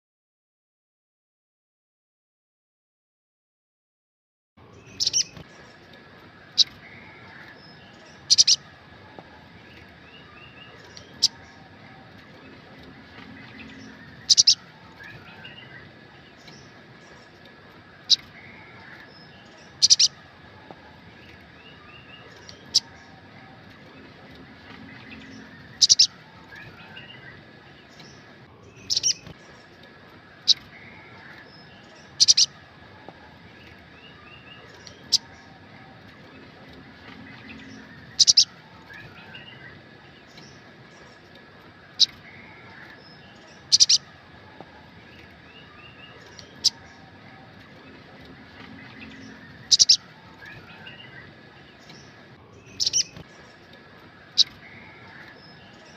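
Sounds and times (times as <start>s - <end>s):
faint chirps: 4.6s - 55.9s
high-pitched bird calls: 4.6s - 55.9s
bird giving sharp high calls: 8.2s - 8.7s, 13.6s - 15.6s, 19.8s - 20.2s, 25.2s - 27.2s, 32.2s - 32.6s, 37.6s - 39.6s, 43.7s - 44.1s, 49.1s - 51.2s, 52.7s - 53.1s.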